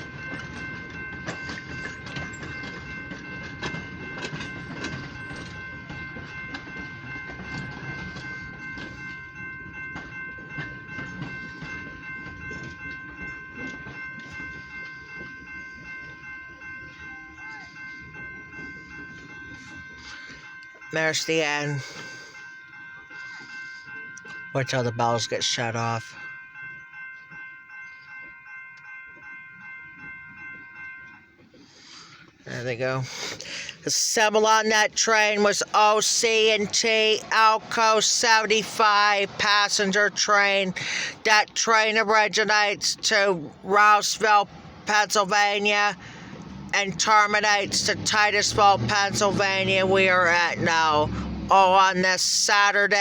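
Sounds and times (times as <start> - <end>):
train wheels clicking over rail joints: 0.0 - 21.2, 33.0 - 51.6
crossing bell ringing: 0.0 - 53.0
low rumble of train cars: 0.0 - 53.0.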